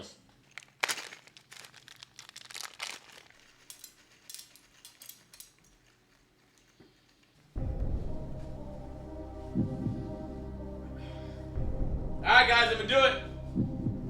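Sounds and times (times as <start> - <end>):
plastic crinkling and clicking: 0.3 - 6.7.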